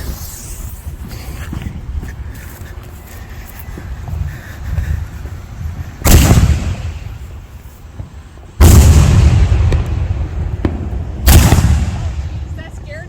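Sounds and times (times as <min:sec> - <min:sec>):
firework booms: 0:06.0 - 0:07.2, 0:08.6 - 0:12.8.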